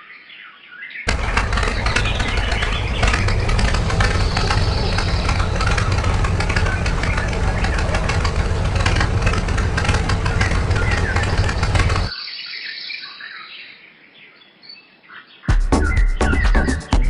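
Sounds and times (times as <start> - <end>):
dense fast ticking: 1.1 - 12.1
small engine running: 1.1 - 12.1.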